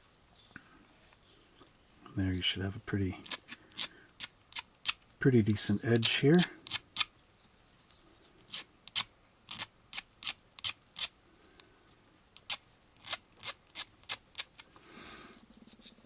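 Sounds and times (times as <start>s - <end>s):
sanding plastic part: 3.2s - 5.0s, 5.9s - 7.1s, 8.5s - 11.2s, 12.4s - 14.8s.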